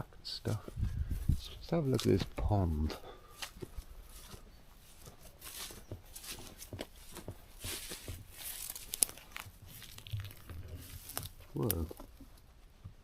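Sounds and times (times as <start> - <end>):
footsteps through rustling vegetation: 0.4 - 12.2
twig snapping: 8.6 - 12.0.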